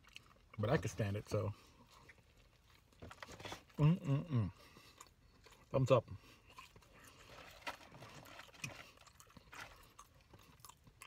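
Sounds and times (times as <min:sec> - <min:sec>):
man chewing: 0:00.0 - 0:00.6, 0:01.6 - 0:03.8, 0:04.5 - 0:11.0.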